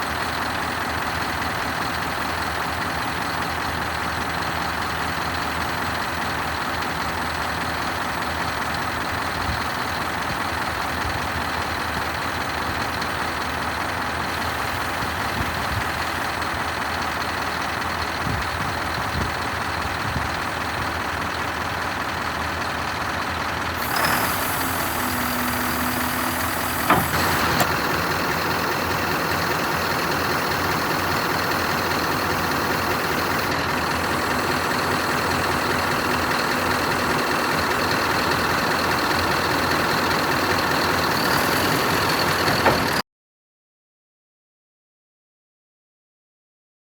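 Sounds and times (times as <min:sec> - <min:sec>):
diesel truck engine idling: 0:00.0 - 0:43.0
air hiss: 0:23.8 - 0:28.1.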